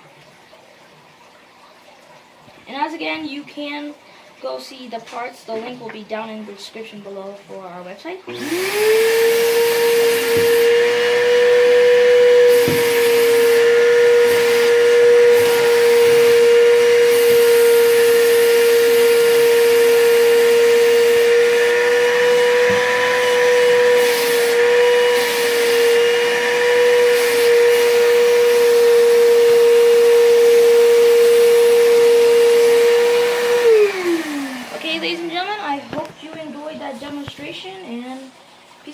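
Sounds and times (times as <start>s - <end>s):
vacuum cleaner running: 8.3s - 36.4s.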